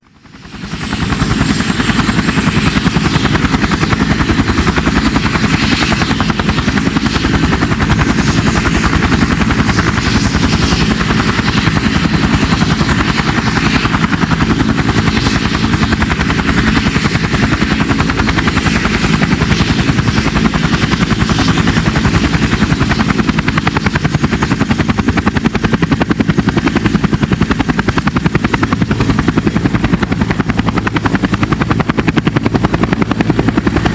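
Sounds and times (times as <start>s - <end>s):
helicopter rotor beat: 0.0s - 33.9s
turbine engine whine: 0.1s - 33.9s.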